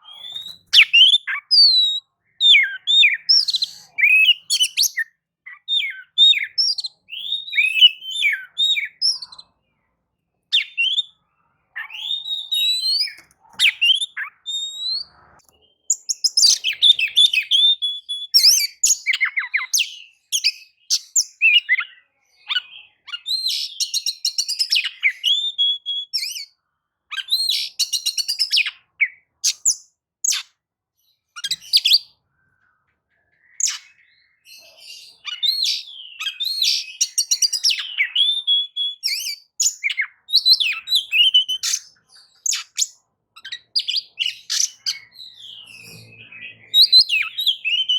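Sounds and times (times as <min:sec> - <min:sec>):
bird singing: 0:00.0 - 0:47.9.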